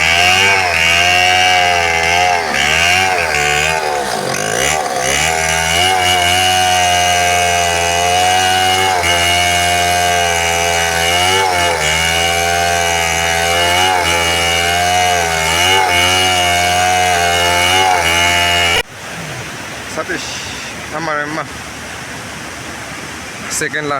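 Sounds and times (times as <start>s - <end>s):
chainsaw cutting wood: 0.0s - 18.9s.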